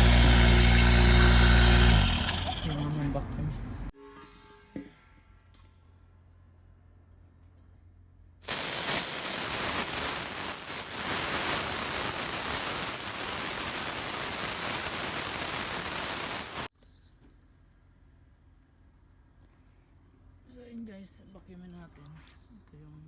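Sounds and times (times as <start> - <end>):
pressurised air hissing: 0.0 - 2.9, 8.4 - 16.7.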